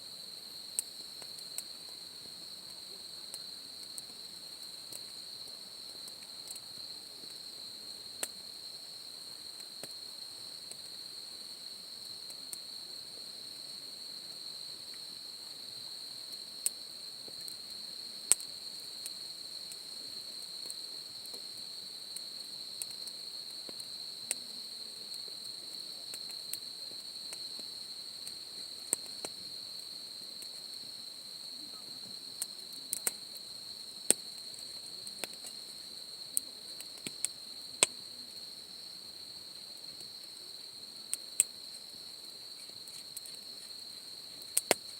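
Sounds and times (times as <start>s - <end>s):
crickets chirring: 0.3s - 44.9s
campfire popping and crackling: 0.7s - 11.0s, 16.6s - 29.6s, 32.3s - 38.6s, 42.4s - 44.9s.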